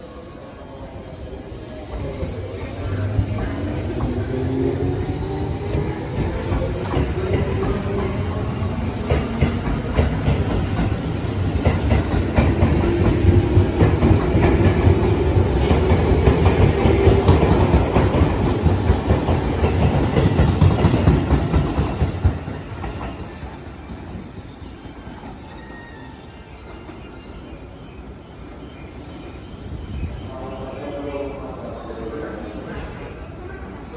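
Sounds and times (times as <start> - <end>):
electric train running: 1.4 - 22.9
train wheel clatter: 1.8 - 24.3.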